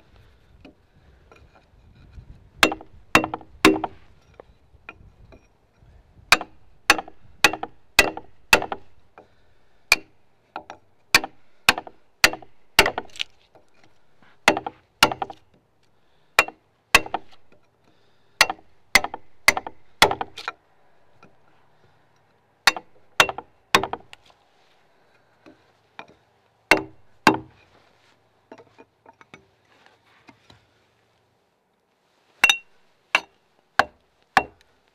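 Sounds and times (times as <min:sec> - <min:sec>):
axe chopping wood: 0:02.6 - 0:04.0, 0:06.3 - 0:09.0, 0:09.9 - 0:13.4, 0:14.4 - 0:15.5, 0:16.4 - 0:17.6, 0:18.4 - 0:20.6, 0:22.7 - 0:24.2, 0:26.7 - 0:27.6, 0:33.2 - 0:34.6.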